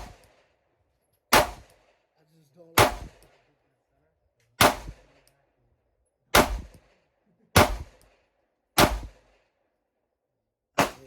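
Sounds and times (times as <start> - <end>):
pistol shots: 0.0 - 0.4, 1.3 - 1.9, 2.8 - 3.4, 4.6 - 5.2, 6.3 - 7.0, 7.6 - 8.2, 8.8 - 9.4, 10.8 - 11.0.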